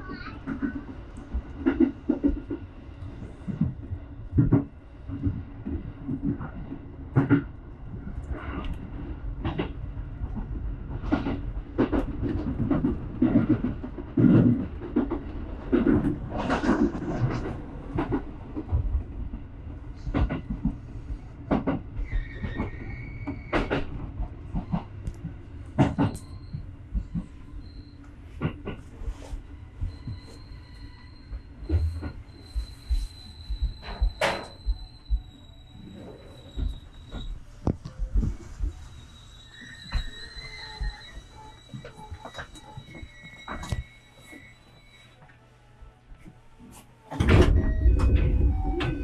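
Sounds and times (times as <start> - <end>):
wheels clacking on rails: 0.0 - 45.4
train rumble: 0.0 - 49.0
high wheel squeal: 22.0 - 24.0, 25.9 - 28.0, 29.2 - 45.4, 47.6 - 49.0.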